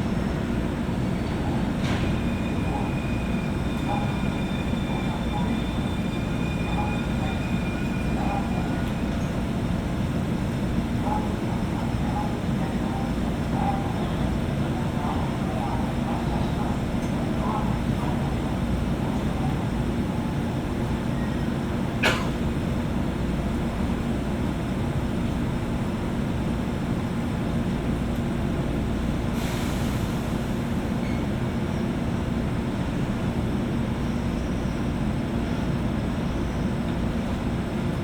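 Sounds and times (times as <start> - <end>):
train equipment and ventilation hum: 0.0 - 38.0.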